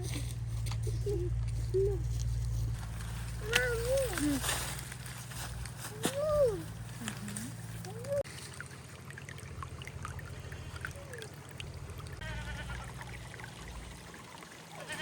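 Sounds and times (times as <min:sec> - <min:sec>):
low steady rumble: 0:00.0 - 0:15.0
goat bleating: 0:12.2 - 0:13.0, 0:14.8 - 0:15.0.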